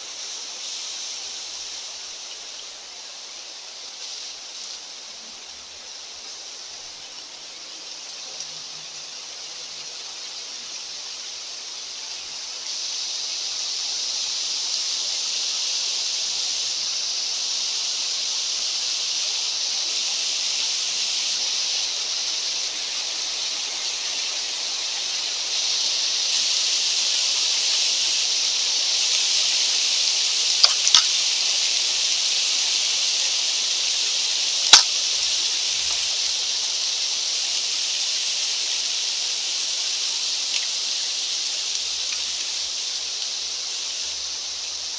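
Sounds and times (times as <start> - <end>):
wind hissing: 27.9 - 44.9
sharp clicks: 30.6 - 31.2.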